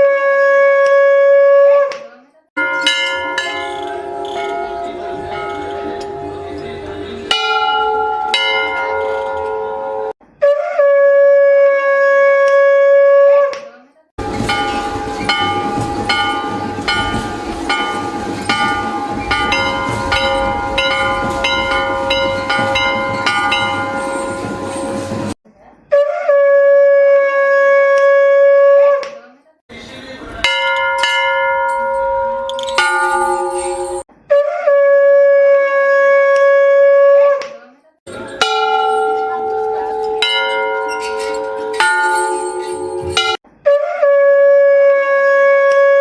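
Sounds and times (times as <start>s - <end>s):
conch shell blown: 0.0s - 1.8s, 3.2s - 13.4s, 34.4s - 37.3s, 38.1s - 46.0s
struck bell ringing: 2.6s - 10.1s, 14.2s - 25.4s, 30.4s - 34.1s, 38.1s - 43.4s
temple bells ringing: 2.6s - 10.2s, 14.2s - 25.4s, 30.4s - 34.1s, 38.1s - 43.4s.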